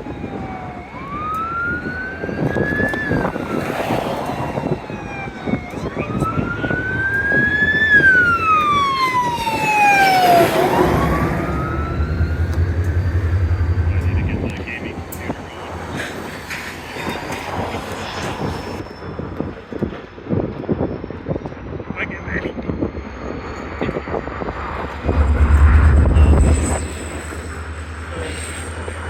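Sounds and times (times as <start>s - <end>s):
siren wailing: 0.0s - 18.8s, 22.9s - 29.0s
low engine rumble: 6.0s - 18.8s, 23.2s - 29.0s.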